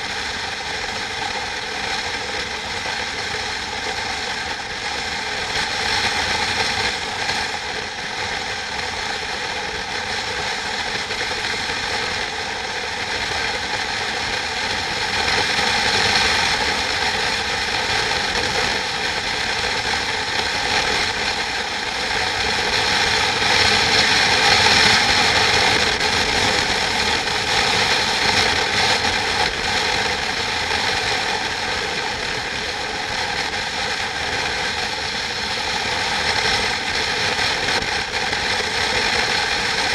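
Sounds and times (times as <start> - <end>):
machine droning and rattling: 0.0 - 39.9.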